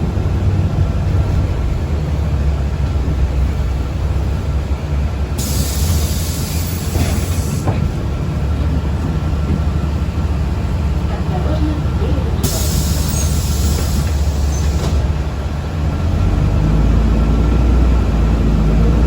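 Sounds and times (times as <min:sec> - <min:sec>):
vehicle interior rumble: 0:00.0 - 0:19.0
hissing air burst: 0:05.4 - 0:07.7, 0:12.4 - 0:14.8.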